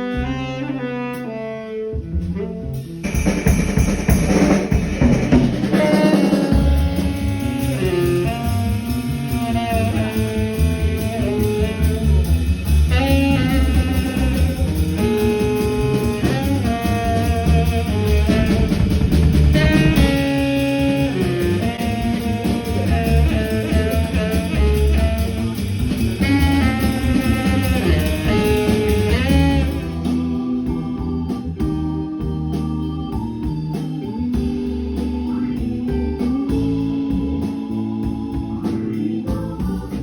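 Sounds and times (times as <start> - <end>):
jazzy band with guitar and horns: 0.0 - 40.0.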